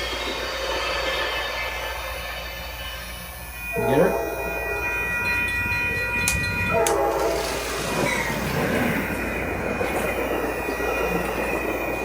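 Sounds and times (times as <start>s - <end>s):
model train electric whine: 0.0s - 12.0s
wheels clattering on track: 5.4s - 12.0s.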